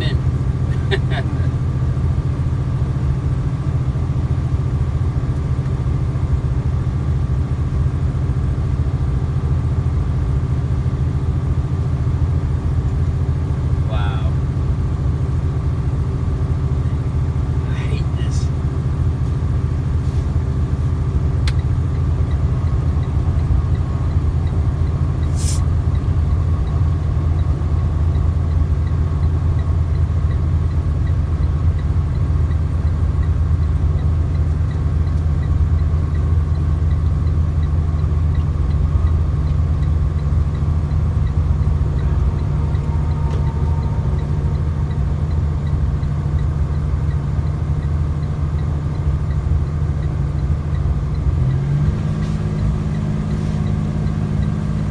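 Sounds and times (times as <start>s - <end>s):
truck engine and road noise: 0.0s - 54.9s
brief high hiss: 25.3s - 25.6s.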